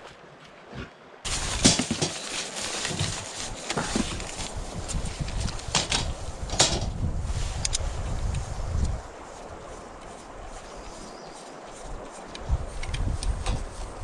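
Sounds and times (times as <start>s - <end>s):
wind buffeting microphone: 3.8s - 14.0s.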